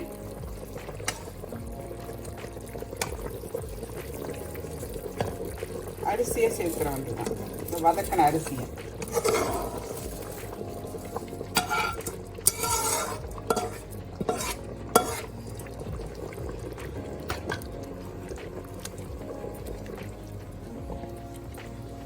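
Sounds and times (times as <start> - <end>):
spoon scraping cooking pot: 1.0 - 1.6, 6.5 - 15.8
spoon clinking on pot: 11.5 - 15.3.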